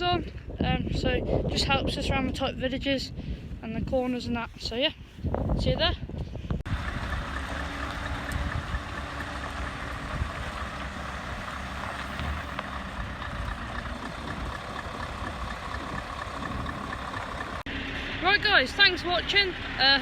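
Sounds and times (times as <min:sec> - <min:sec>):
diesel lorry engine rumble: 0:06.6 - 0:20.0
road noise: 0:06.6 - 0:20.0.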